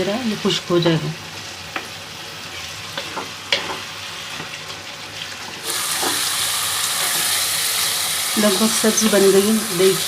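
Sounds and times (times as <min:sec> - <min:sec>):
chutney sizzling in a pan: 0:00.0 - 0:10.0
spoon scraping and tapping pan: 0:03.0 - 0:04.5.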